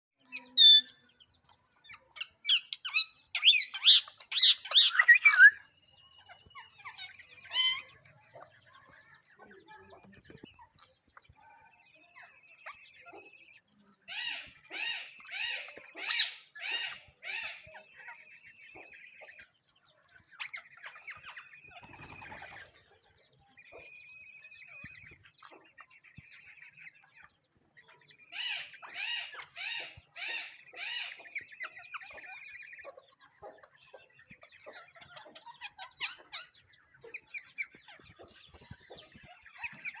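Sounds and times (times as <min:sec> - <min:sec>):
parakeet chirping and chattering: 0:00.2 - 0:40.0
parakeet screeching: 0:06.6 - 0:07.9.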